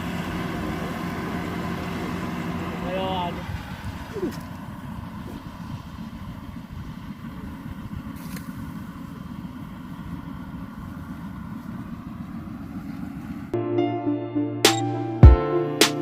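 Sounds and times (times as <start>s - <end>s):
diesel engine running: 0.0s - 13.6s.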